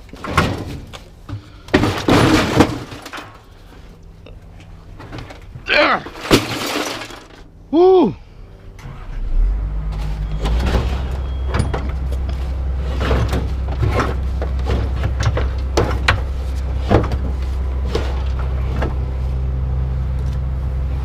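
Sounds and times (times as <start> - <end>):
metal clanks and rattles: 0.0 - 3.6, 4.9 - 7.5, 9.1 - 19.0
engine humming: 0.0 - 21.0.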